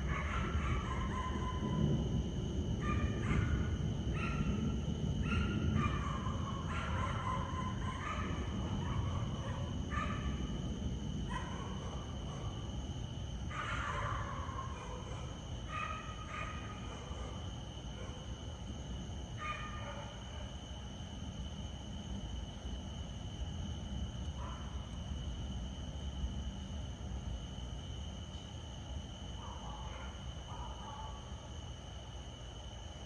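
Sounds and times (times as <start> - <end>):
dog barking: 0.0 - 1.8, 2.8 - 4.6, 5.2 - 10.4, 11.3 - 12.7, 13.5 - 18.4, 19.4 - 20.5, 24.4 - 24.8, 29.4 - 31.4
thunder rumbling: 0.0 - 12.2.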